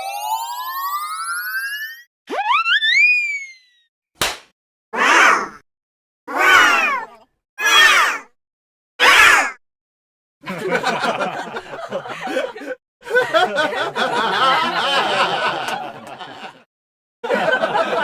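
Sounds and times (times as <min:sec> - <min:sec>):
people snickering and chuckling: 0:10.4 - 0:16.6, 0:17.3 - 0:18.0.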